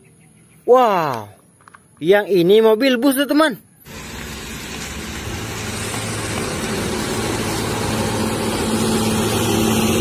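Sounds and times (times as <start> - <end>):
road noise: 3.6 - 10.0
bus diesel engine driving past: 3.9 - 10.0.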